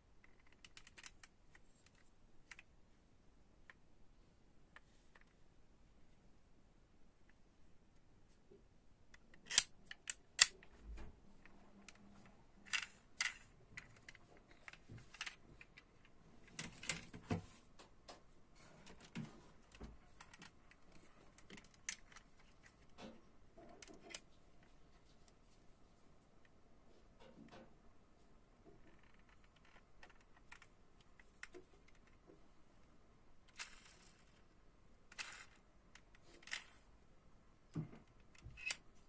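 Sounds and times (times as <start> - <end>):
toy cars and packaging clicking: 0.2 - 2.7, 9.1 - 10.6, 11.8 - 17.2, 33.5 - 34.5, 35.1 - 36.8.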